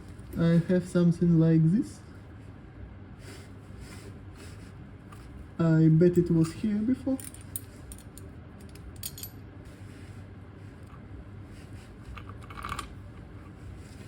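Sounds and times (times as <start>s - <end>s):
low room hum: 0.0s - 14.0s
metal parts and tools clinking: 7.2s - 9.4s.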